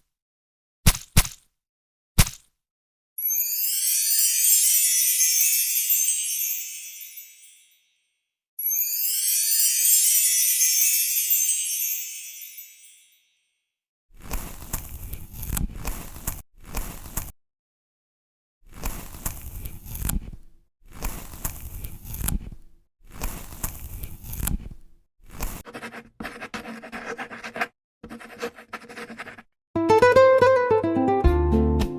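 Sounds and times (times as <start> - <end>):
paintbrush scraping on paper: 14.2 - 17.3, 18.7 - 29.5.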